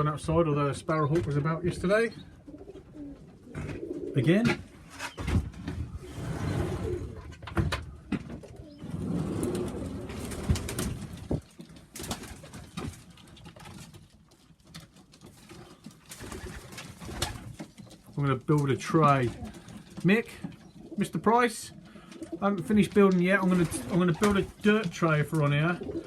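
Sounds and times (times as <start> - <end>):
pigeons cooing: 1.0 - 5.3, 5.9 - 7.4, 8.0 - 11.4, 19.1 - 21.2, 21.8 - 24.6, 25.4 - 26.0.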